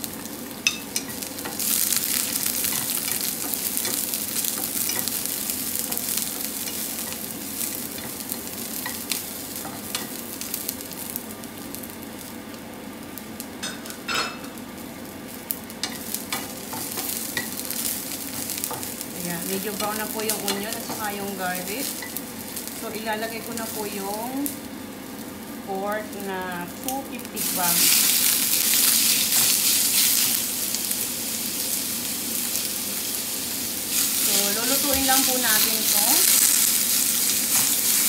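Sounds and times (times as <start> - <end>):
garlic and onion sizzling in oil: 0.0 - 38.0.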